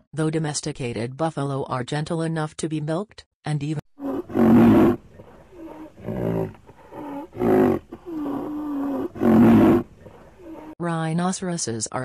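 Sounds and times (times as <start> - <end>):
large animal bellowing: 4.0 - 10.8.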